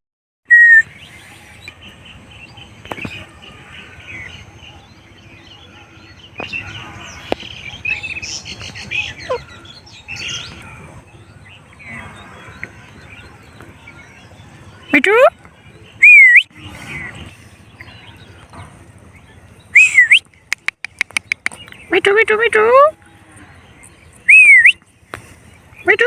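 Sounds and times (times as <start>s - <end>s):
birds chirping: 0.5s - 26.0s
sharp clicks: 20.4s - 21.8s.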